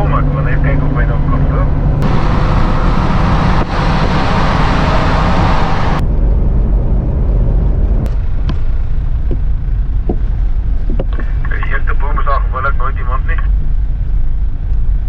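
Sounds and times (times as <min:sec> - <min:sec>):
engine and tyre rumble: 0:00.0 - 0:12.1, 0:13.4 - 0:15.0
loud rushing hiss: 0:02.0 - 0:06.0.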